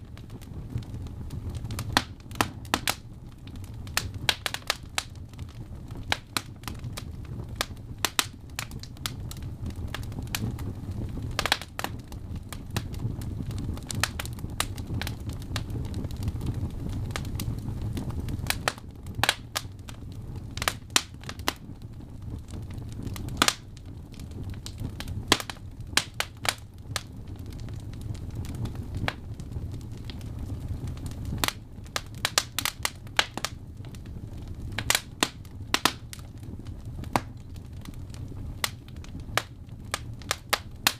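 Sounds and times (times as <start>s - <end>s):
burning logs popping: 0.0s - 40.9s
wood fire crackling: 0.0s - 40.9s.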